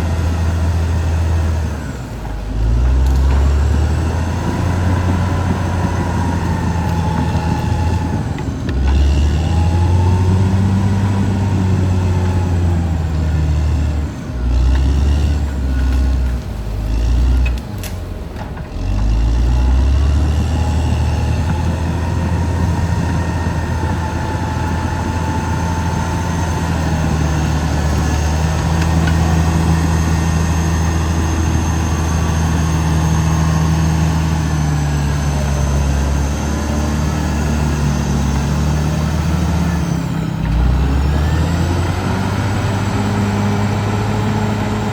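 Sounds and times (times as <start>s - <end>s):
bulldozer diesel engine under load: 0.0s - 44.9s.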